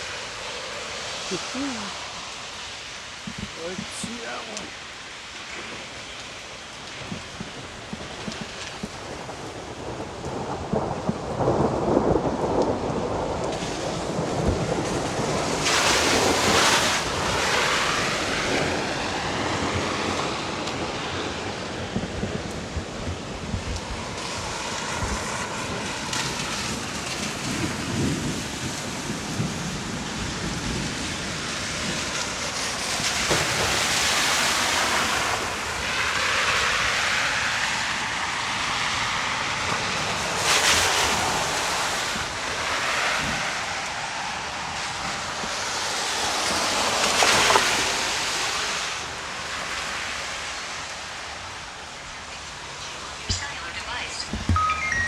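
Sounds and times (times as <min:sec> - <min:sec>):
heavy rain falling: 0:00.0 - 0:55.0
thunder rumbling: 0:06.7 - 0:37.0.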